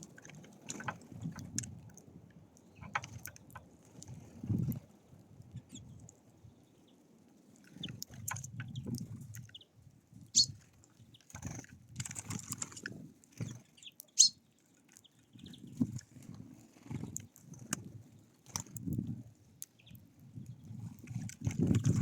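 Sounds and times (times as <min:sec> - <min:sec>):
short high bird chirps: 0:10.4 - 0:10.6, 0:14.1 - 0:14.4.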